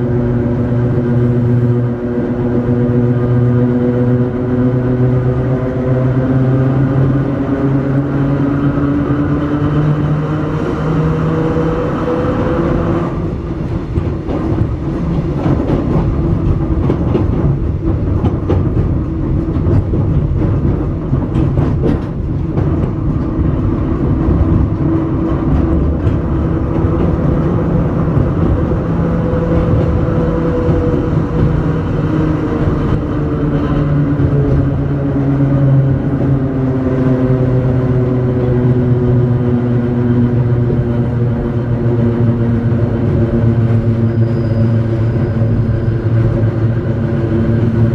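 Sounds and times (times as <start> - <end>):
electric railcar motor hum: 0.0 - 47.9
wheels rumbling on rail: 0.0 - 47.9
rail clicks: 10.0 - 47.9.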